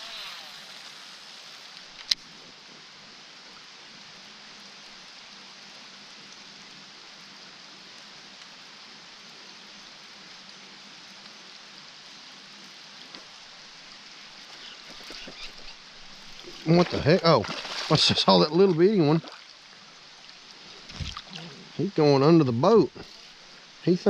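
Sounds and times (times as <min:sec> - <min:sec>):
rain falling on water: 0:00.0 - 0:24.0.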